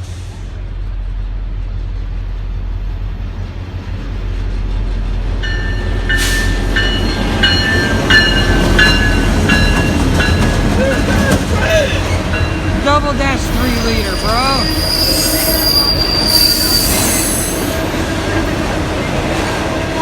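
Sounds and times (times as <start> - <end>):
diesel locomotive engines rumbling: 0.0 - 20.0
locomotive bell ringing: 5.4 - 18.6.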